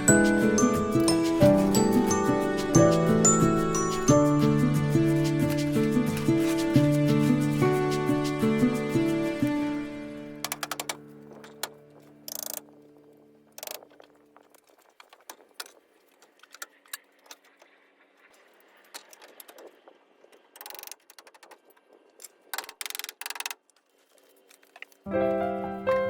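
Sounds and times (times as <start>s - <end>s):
background music: 0.0s - 13.2s, 25.1s - 26.0s.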